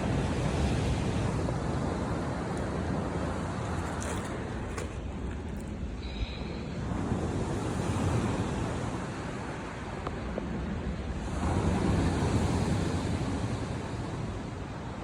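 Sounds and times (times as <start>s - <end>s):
sea waves washing onto shore: 0.0s - 15.0s.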